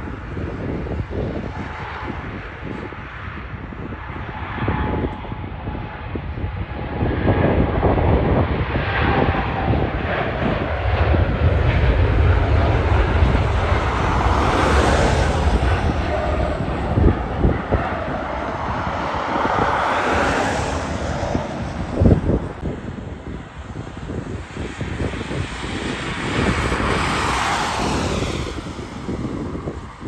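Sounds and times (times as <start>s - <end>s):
jet engines with high whine: 0.0s - 30.0s.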